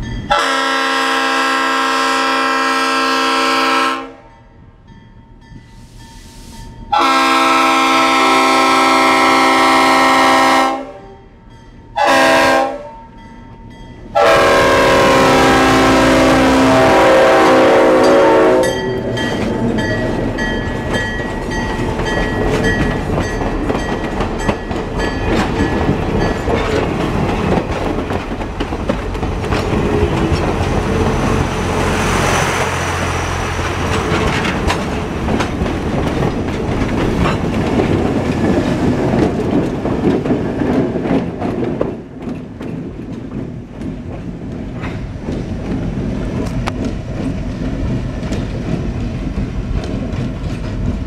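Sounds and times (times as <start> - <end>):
diesel locomotive passing: 0.0 - 51.0
train wheels clacking over rail joints: 18.8 - 31.5, 33.3 - 51.0.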